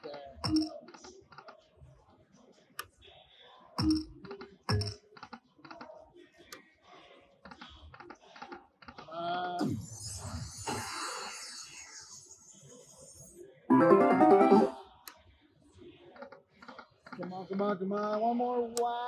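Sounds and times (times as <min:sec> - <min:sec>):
slot machine reels clicking: 0:13.7 - 0:14.8.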